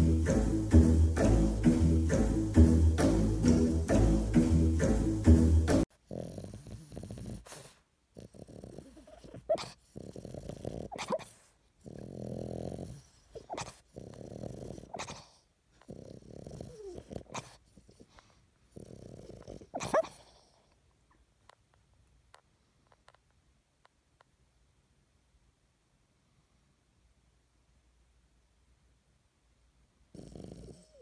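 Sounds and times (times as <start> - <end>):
puppy growling: 5.9 - 20.7, 30.1 - 31.0
puppy whining: 6.1 - 20.5.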